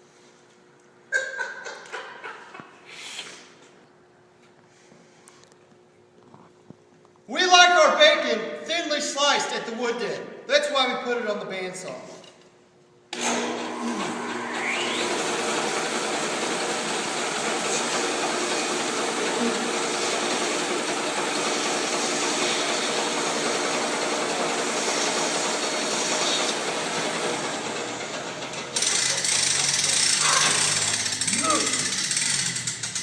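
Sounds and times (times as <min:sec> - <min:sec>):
bandsaw mill droning: 0:13.1 - 0:33.0
loud mechanical noise: 0:13.1 - 0:33.0.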